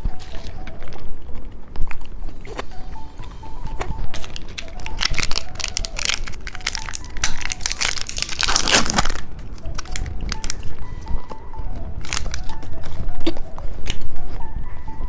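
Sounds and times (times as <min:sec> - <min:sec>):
plastic packaging crinkling: 0:04.1 - 0:10.7, 0:12.0 - 0:13.0.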